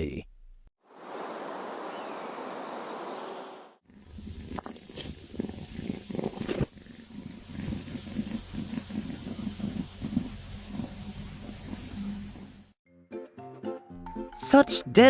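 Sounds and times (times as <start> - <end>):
cat purring: 3.9 - 12.8.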